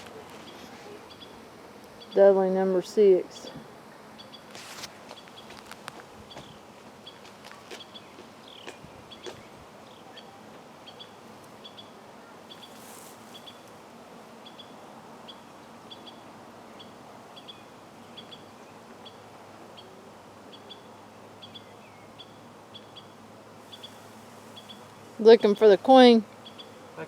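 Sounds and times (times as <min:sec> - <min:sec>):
faint outdoor hiss: 0:00.0 - 0:27.0
brief rustle: 0:04.5 - 0:06.0
small bird chirping: 0:06.3 - 0:13.7, 0:20.5 - 0:24.9, 0:26.4 - 0:26.8.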